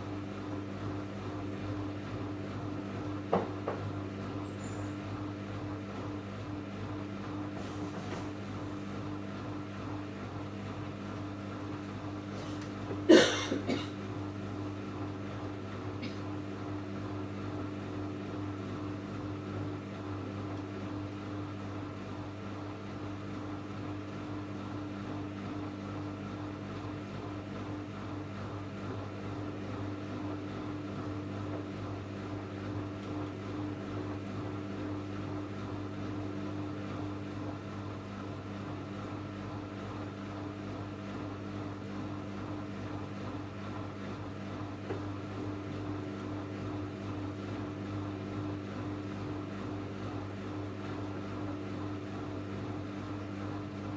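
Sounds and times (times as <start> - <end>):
washing machine humming: 0.0 - 53.9.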